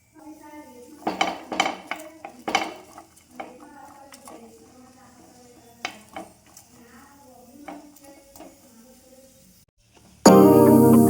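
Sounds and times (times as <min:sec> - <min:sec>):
cutlery clinking against dishes: 0:01.0 - 0:06.6.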